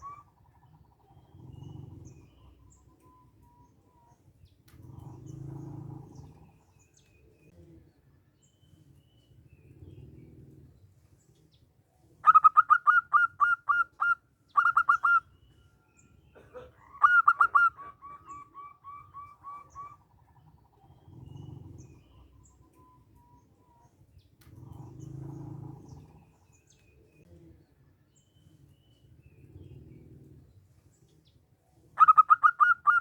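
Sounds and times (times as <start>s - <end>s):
dove cooing: 0.0s - 7.8s, 12.2s - 15.5s, 16.4s - 27.7s, 29.2s - 33.0s.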